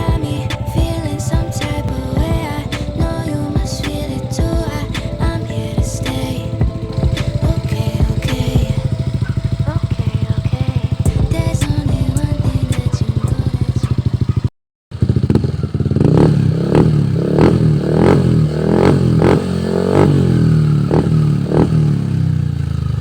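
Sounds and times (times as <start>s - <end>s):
scooter engine idling and revving: 0.0s - 23.0s.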